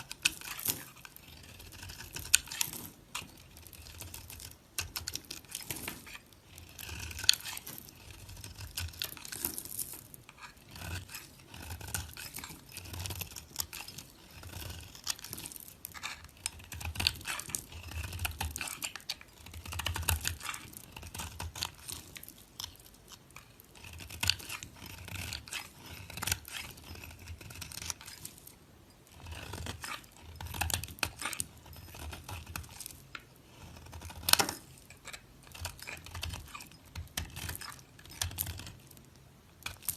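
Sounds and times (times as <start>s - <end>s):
soap crackling as it is cut: 0.0s - 39.9s.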